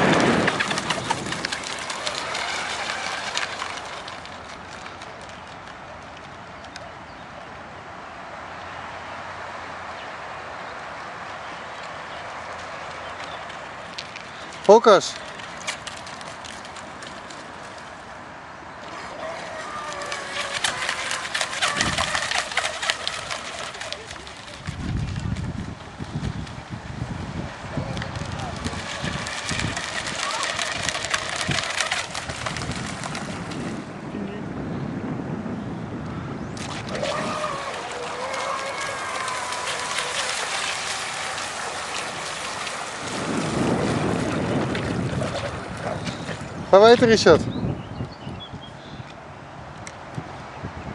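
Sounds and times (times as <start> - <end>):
electric boat motor whine: 0.0 - 4.3, 18.8 - 24.0, 36.6 - 44.6.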